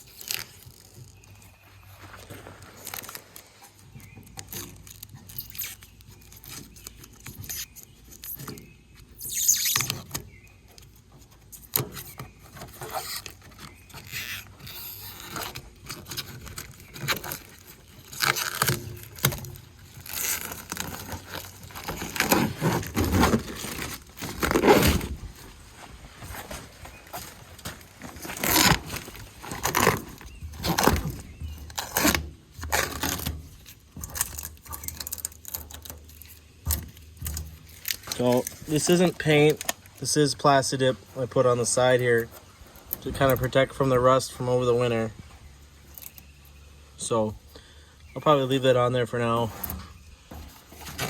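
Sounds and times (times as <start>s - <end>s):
rubber coating peeling and tearing: 0.0s - 45.2s.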